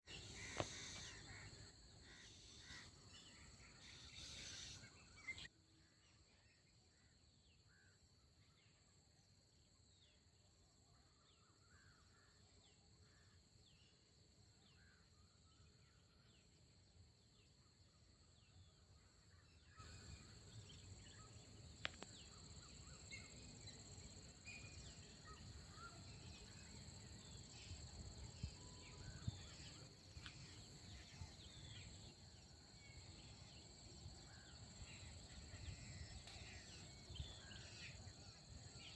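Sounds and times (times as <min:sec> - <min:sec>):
small birds chirping: 0:00.0 - 0:05.5, 0:19.8 - 0:38.9
insects trilling: 0:00.1 - 0:05.5, 0:19.8 - 0:38.9
pulsing insect chirp: 0:00.1 - 0:05.5, 0:19.8 - 0:38.9.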